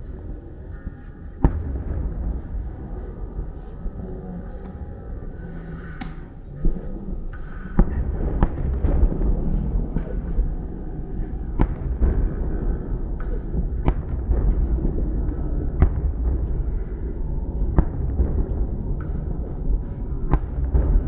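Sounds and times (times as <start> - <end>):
low rumble: 0.0 - 21.0
fireworks bangs: 7.8 - 10.6, 11.2 - 12.8, 13.5 - 18.6.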